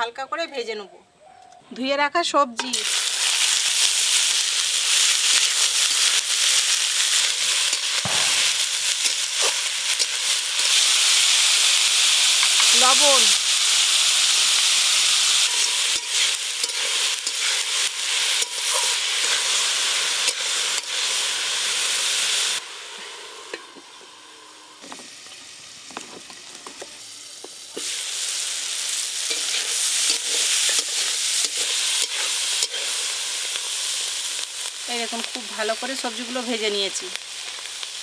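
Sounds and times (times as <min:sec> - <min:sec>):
vegetables sizzling in a pan: 0:02.5 - 0:38.0.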